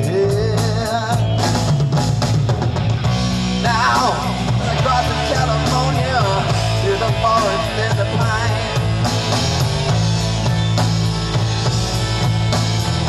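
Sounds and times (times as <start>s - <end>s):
person singing: 0.0s - 1.6s, 3.6s - 8.8s
live rock band playing: 0.0s - 13.0s.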